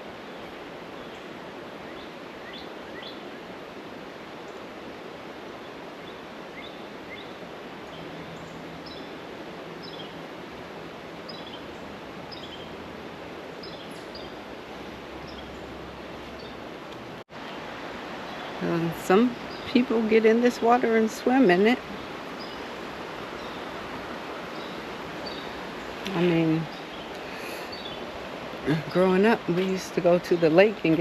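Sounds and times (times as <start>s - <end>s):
creek water flowing: 0.0s - 31.0s
bird chirping: 6.0s - 9.2s, 9.8s - 10.2s, 11.2s - 12.8s, 13.6s - 14.4s, 15.2s - 16.6s, 18.2s - 22.7s, 23.3s - 23.8s, 24.5s - 31.0s.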